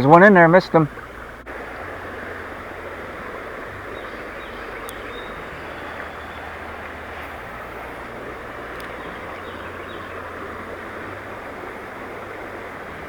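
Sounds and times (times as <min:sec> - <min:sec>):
river water rushing: 0:00.0 - 0:13.0
light click: 0:04.8 - 0:05.2, 0:08.7 - 0:09.2.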